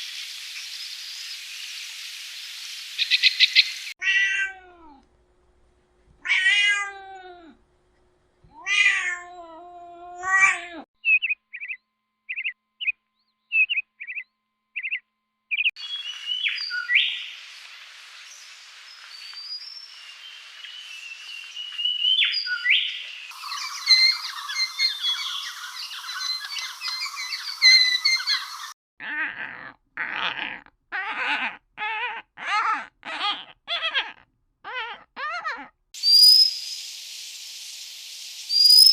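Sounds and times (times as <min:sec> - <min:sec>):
light hiss: 0:00.0 - 0:03.9, 0:15.8 - 0:24.7, 0:36.0 - 0:38.9
birds chirping and calling: 0:03.0 - 0:03.9, 0:11.0 - 0:12.9, 0:14.8 - 0:28.7, 0:36.0 - 0:37.0
cat meowing: 0:04.0 - 0:05.0, 0:06.2 - 0:07.6, 0:08.5 - 0:10.8
short high chirps: 0:36.0 - 0:37.4.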